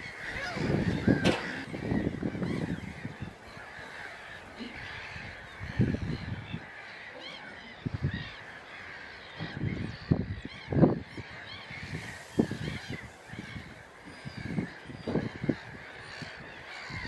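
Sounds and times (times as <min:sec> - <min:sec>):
gulls calling: 0:00.0 - 0:17.0.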